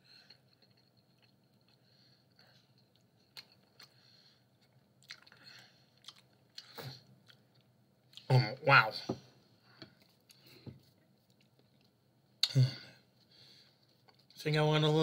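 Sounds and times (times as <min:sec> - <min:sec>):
chewing with mouth clicks: 0:00.1 - 0:08.3, 0:09.8 - 0:12.6.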